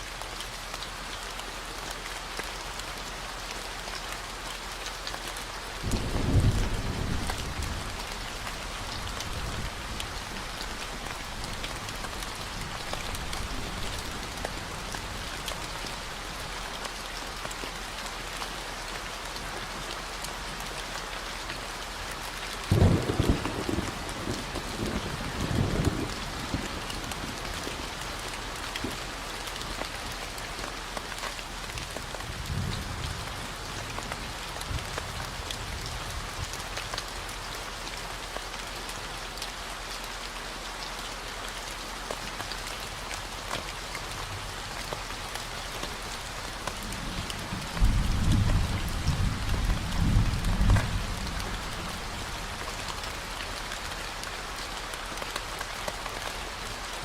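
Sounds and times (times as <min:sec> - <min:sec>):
steady rain: 0:00.0 - 0:57.0
thunder rumbling: 0:05.9 - 0:08.0, 0:46.8 - 0:53.2.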